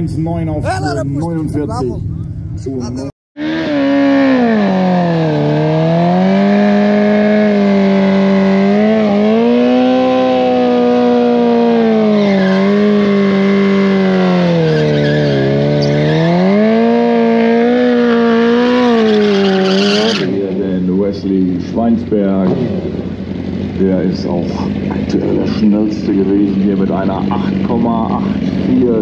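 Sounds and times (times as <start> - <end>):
motorcycle engine revving high: 0.0 - 29.0
tyre squeal: 12.0 - 12.8, 14.5 - 16.2, 18.0 - 20.4.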